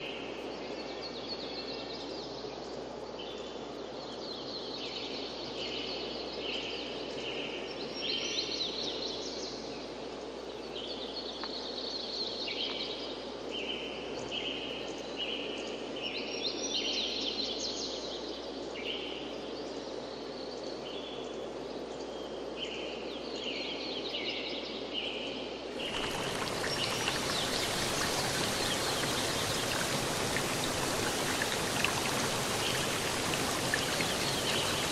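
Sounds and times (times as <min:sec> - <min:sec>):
rushing water: 0:25.8 - 0:34.9
songbirds singing: 0:25.8 - 0:34.9.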